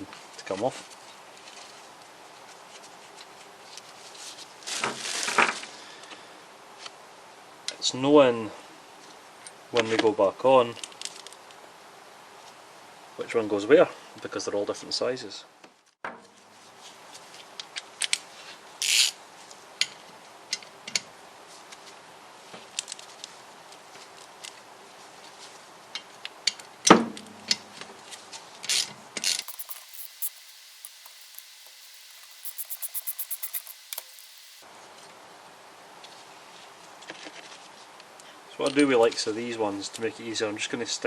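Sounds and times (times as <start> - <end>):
ratchet clicks: 29.4 - 34.6.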